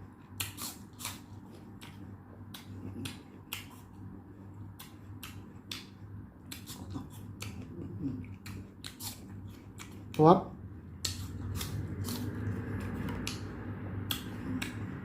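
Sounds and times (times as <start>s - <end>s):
crunchy chewing: 0.0s - 10.2s, 10.9s - 15.0s
low hum: 1.2s - 15.0s.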